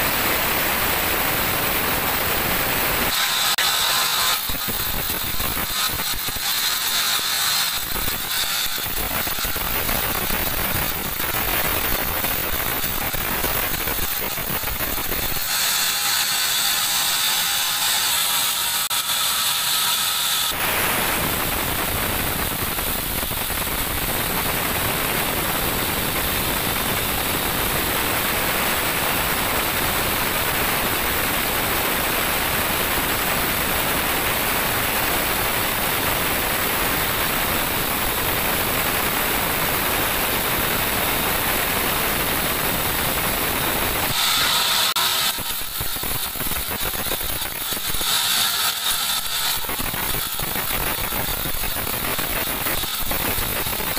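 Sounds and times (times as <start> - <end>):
band sawmill sawing a log: 0.4 - 21.2, 43.5 - 53.9.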